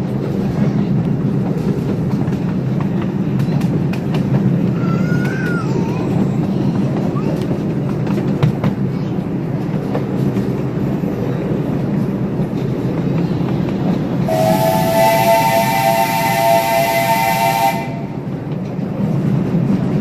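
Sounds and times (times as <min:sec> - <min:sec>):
train cars rumbling on rails: 0:00.0 - 0:20.0
steam whistle chord: 0:14.3 - 0:18.2.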